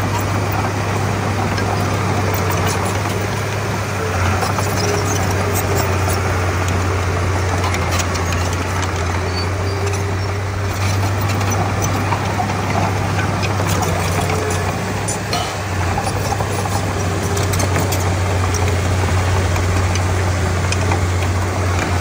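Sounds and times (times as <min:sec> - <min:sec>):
bulldozer diesel engine running: 0:00.0 - 0:22.0
light clicks and clanks: 0:07.5 - 0:18.8, 0:19.5 - 0:22.0.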